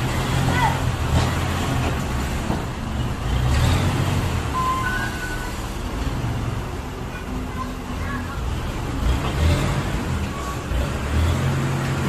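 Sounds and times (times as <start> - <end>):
truck engine rumbling: 0.0 - 12.0
short high tones: 4.5 - 5.7.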